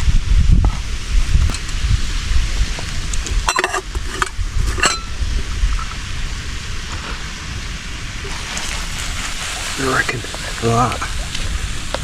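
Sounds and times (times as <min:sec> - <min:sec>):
food sizzling in a pan: 0:07.7 - 0:12.0.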